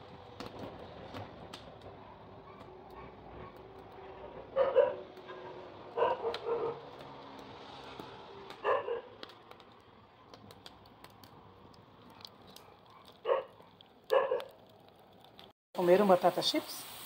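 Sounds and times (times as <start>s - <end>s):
dog barking: 2.1s - 3.6s, 4.6s - 6.8s, 8.6s - 9.1s, 12.1s - 14.6s.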